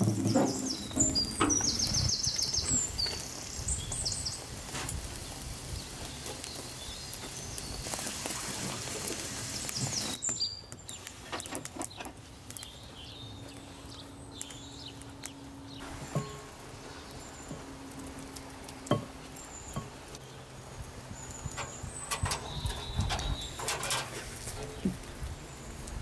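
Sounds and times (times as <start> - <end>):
small birds chirping: 0.0 - 26.0
steady outdoor hiss: 0.0 - 26.0
scattered clicks and knocks: 21.5 - 25.0.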